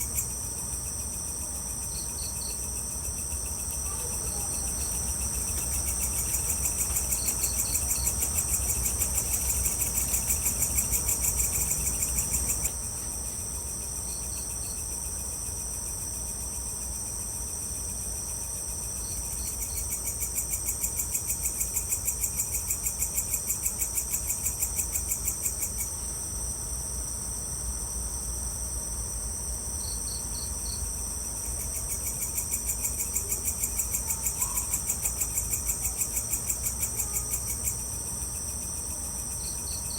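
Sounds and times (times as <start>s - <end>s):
cricket chirps: 0.0s - 39.9s
high pulsing insect trill: 0.0s - 39.9s
lower pulsing insect trill: 0.0s - 39.9s.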